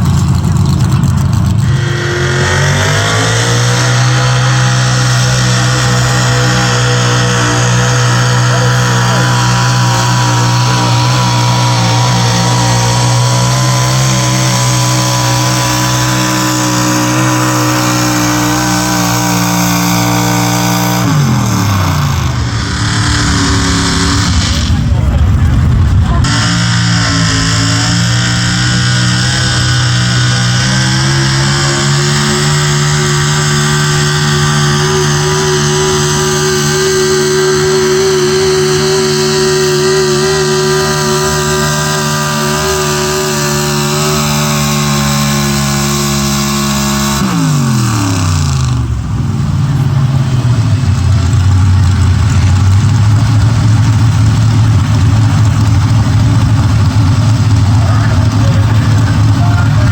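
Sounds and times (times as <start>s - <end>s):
truck engine at high revs: 0.0s - 59.9s.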